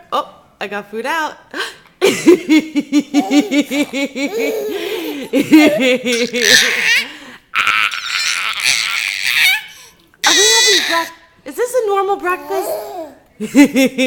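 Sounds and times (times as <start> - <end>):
baby laughing: 3.0 - 11.1
baby squealing: 6.2 - 11.2.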